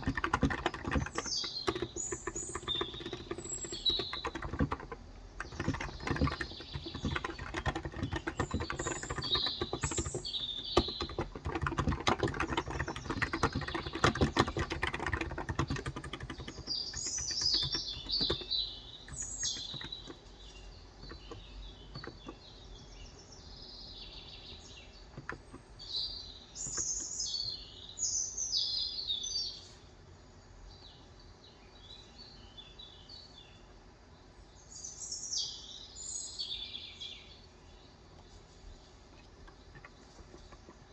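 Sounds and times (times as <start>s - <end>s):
keyboard typing: 0.0s - 22.5s, 25.1s - 25.7s, 39.4s - 40.9s
birds chirping: 0.0s - 29.7s, 34.6s - 40.9s.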